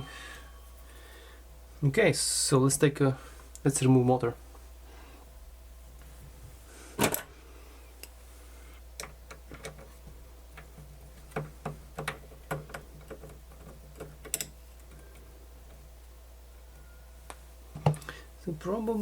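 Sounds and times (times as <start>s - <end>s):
small tools clicking on metal parts: 12.0s - 15.0s.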